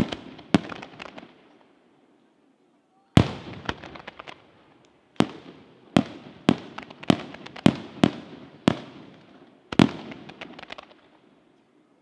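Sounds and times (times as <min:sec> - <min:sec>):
firework shells bursting: 0:03.2 - 0:11.1.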